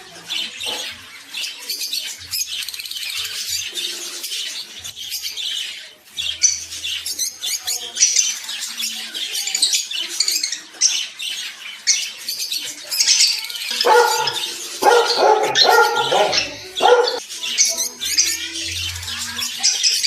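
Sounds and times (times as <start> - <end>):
birds chattering and chirping: 0.0 - 20.0
loud low bird calls: 13.7 - 17.2.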